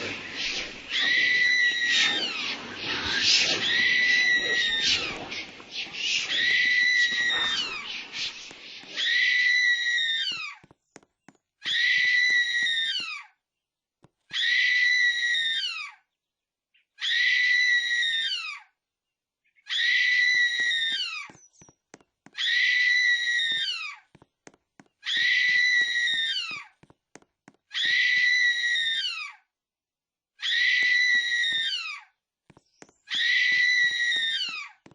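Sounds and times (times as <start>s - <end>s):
shrill high-pitched scream: 0.0s - 10.6s, 11.7s - 13.2s, 14.3s - 15.9s, 19.7s - 21.3s, 22.4s - 24.0s, 25.0s - 26.7s, 27.7s - 29.4s, 30.4s - 32.0s, 33.1s - 34.7s.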